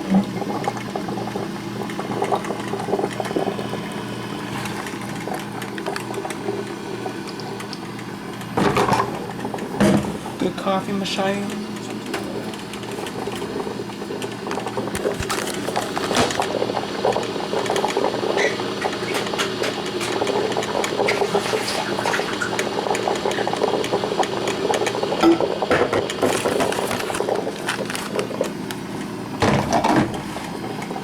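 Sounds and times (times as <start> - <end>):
coffee maker bubbling and gurgling: 0.0 - 31.0.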